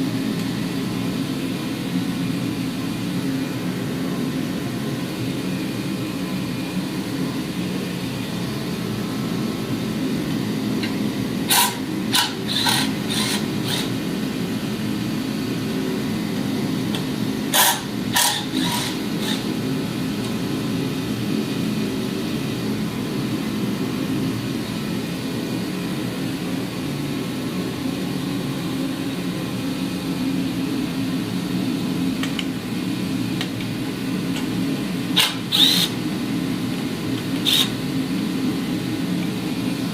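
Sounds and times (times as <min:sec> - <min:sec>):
low whirring hum: 0:00.0 - 0:39.9.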